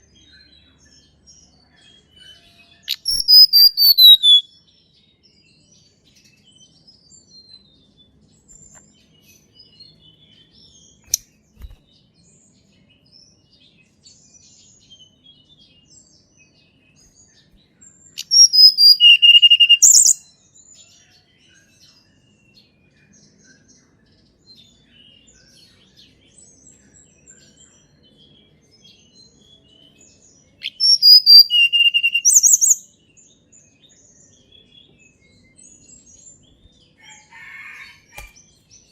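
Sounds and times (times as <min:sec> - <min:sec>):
bird singing whistles and trill: 0:00.0 - 0:12.5, 0:17.0 - 0:38.3
faint chirps of other birds: 0:00.0 - 0:38.9.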